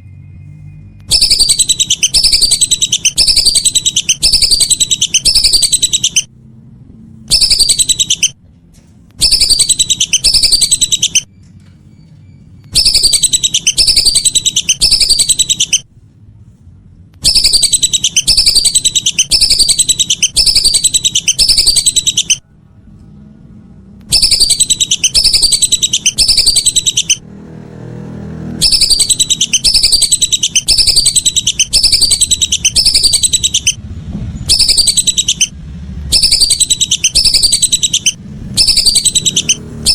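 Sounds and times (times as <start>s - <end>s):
whistling ducks calling: 1.1s - 6.3s, 7.3s - 8.4s, 9.2s - 11.3s, 12.7s - 15.8s, 17.2s - 22.4s, 24.1s - 27.2s, 28.6s - 33.8s, 34.4s - 35.5s, 36.1s - 39.9s.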